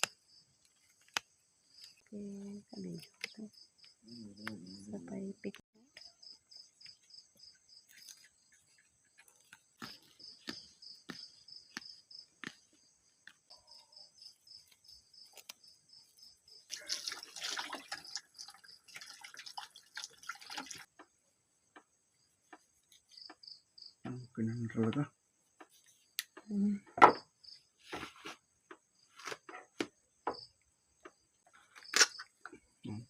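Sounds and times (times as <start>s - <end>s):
crickets chirping: 0.0s - 33.0s
running splashing water: 16.7s - 20.9s.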